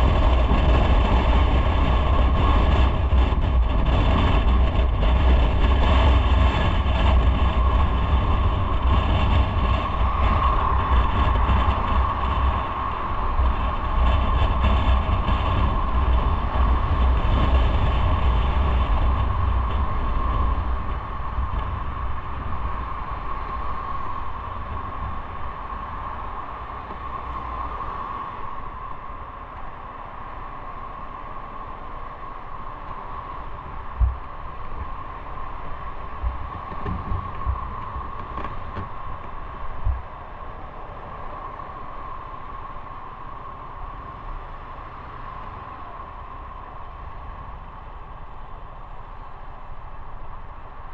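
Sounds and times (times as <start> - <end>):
wind and road rush: 0.0 - 50.9.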